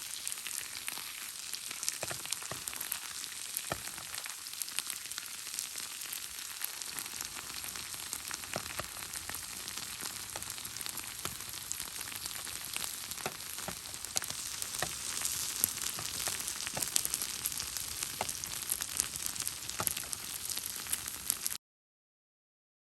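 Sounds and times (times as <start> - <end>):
food sizzling in a pan: 0.0 - 21.6
sharp pops and crackles: 1.7 - 4.4, 6.7 - 21.6.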